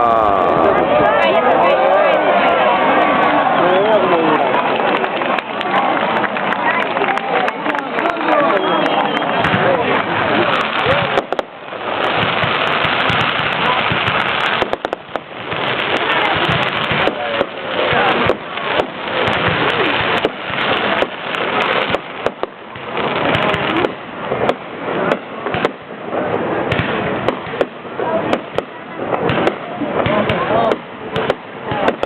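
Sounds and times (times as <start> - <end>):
fireworks crackling and banging: 0.0 - 32.0.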